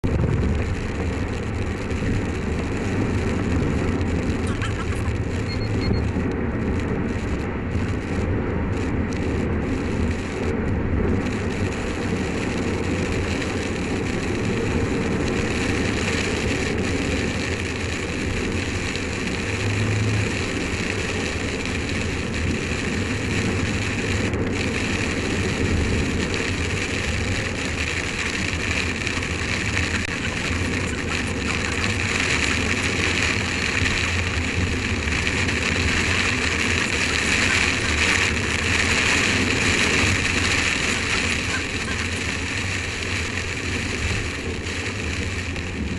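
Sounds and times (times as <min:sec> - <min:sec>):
car road and engine rumble: 0:00.0 - 0:45.9
rain hitting car windscreen: 0:00.0 - 0:45.9.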